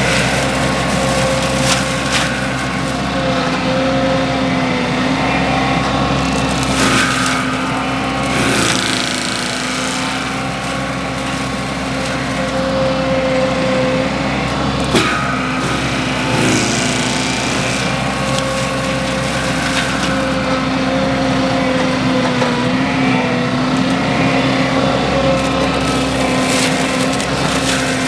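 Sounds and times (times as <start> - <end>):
wood cracking and snapping: 0.0 - 4.0, 6.2 - 13.4, 14.8 - 20.7, 25.4 - 28.0
skid steer engine under load: 0.0 - 28.0
mulcher head spinning: 5.0 - 21.2.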